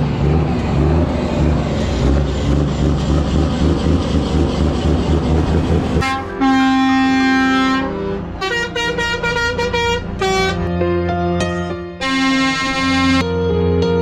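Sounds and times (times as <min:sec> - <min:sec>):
truck engine rumbling: 0:00.0 - 0:13.4
musical air horn blasts: 0:06.0 - 0:10.8, 0:12.0 - 0:13.3.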